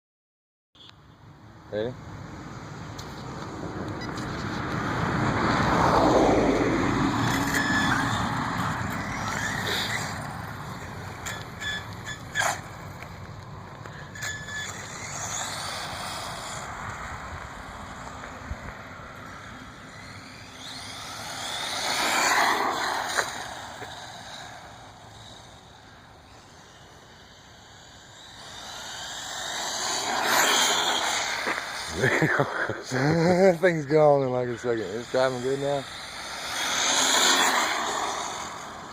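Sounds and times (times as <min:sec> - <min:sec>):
rc car tyre noise: 0:02.9 - 0:38.9
rc car motor whine: 0:04.0 - 0:38.9.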